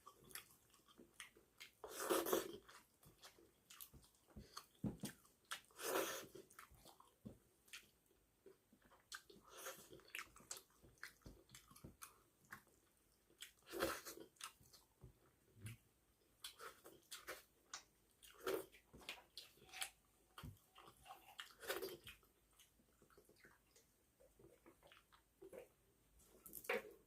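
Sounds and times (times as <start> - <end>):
wet chewing and lip smacks: 8.8 - 14.9.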